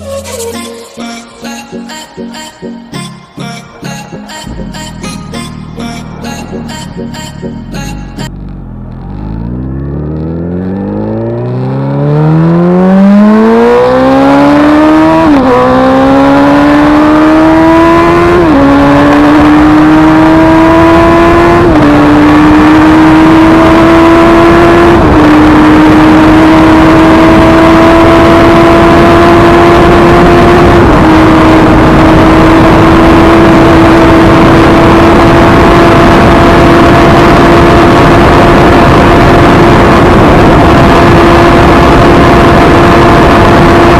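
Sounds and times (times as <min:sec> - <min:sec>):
motorcycle engine accelerating through gears: 0:07.4 - 0:43.9.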